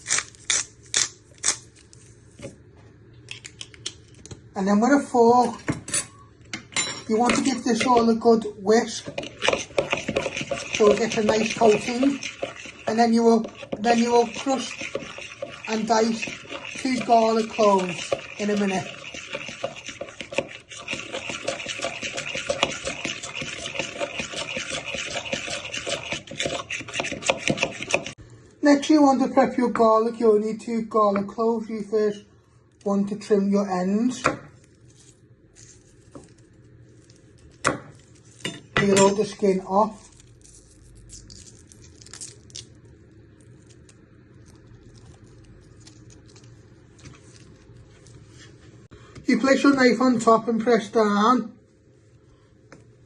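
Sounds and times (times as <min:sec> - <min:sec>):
garlic skin crackling when peeled: 0:00.0 - 0:02.0
low steady hum: 0:00.0 - 0:53.0
fork whisking in bowl: 0:07.1 - 0:28.2.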